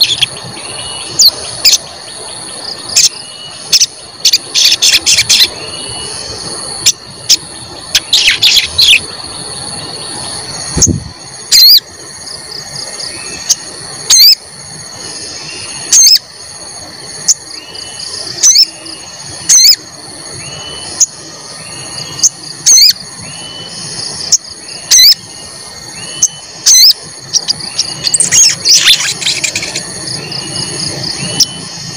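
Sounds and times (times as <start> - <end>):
high insect drone: 0.0 - 31.9
bird giving sharp high calls: 26.0 - 29.8.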